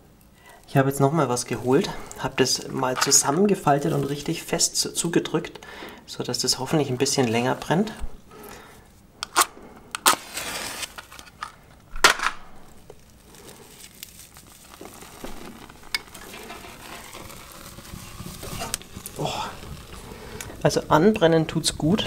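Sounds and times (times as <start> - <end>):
firelighter crackling: 0.4 - 5.0, 9.2 - 22.0.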